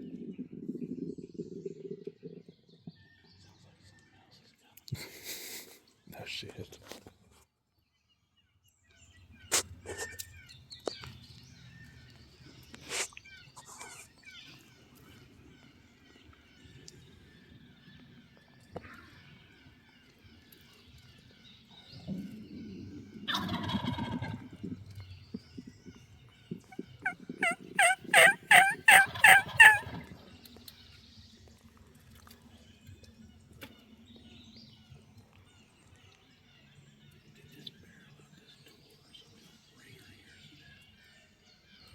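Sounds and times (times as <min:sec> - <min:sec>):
birds chirping: 0:19.6 - 0:30.8
faint bird chirps: 0:24.6 - 0:30.0.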